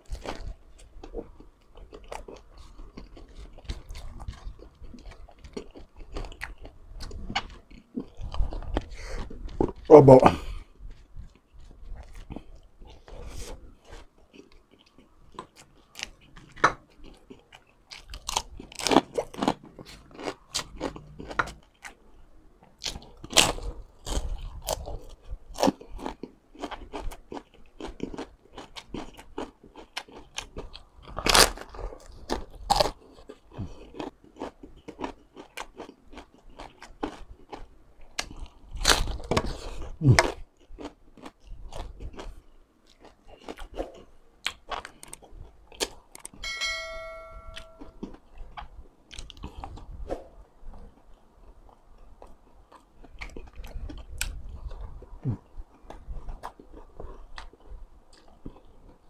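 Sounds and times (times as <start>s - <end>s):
crunching crispy food: 0.0s - 22.1s, 22.7s - 46.4s
chewing: 0.0s - 46.4s, 48.0s - 59.0s.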